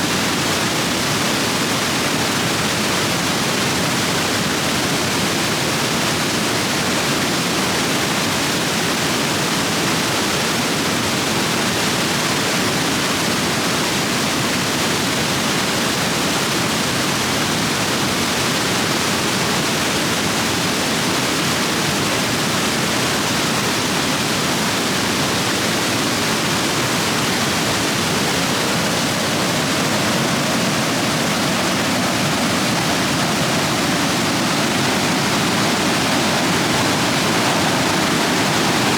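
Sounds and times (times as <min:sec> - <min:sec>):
water rushing over rocks: 0:19.4 - 0:38.9.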